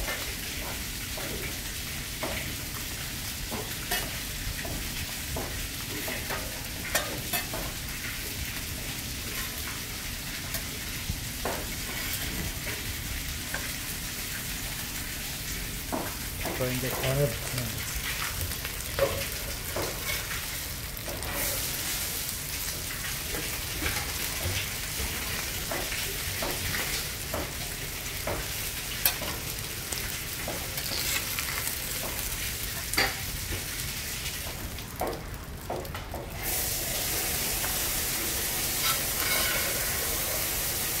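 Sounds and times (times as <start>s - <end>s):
fish sizzling on a griddle: 0.0s - 41.0s
metal spatula scraping griddle: 18.9s - 20.4s, 30.8s - 32.2s, 38.7s - 40.3s.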